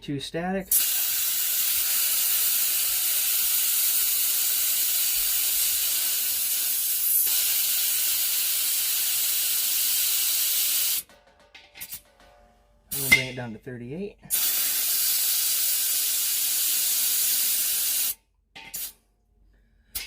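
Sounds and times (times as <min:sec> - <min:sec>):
compressed air hissing from valve: 0:00.7 - 0:11.0, 0:14.3 - 0:19.0.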